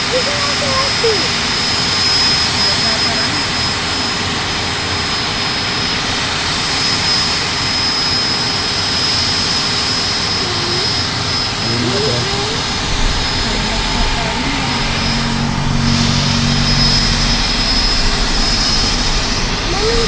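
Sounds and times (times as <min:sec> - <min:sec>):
helicopter rotor whooshing: 0:00.0 - 0:20.0
high-pitched turbine whine: 0:00.0 - 0:20.0.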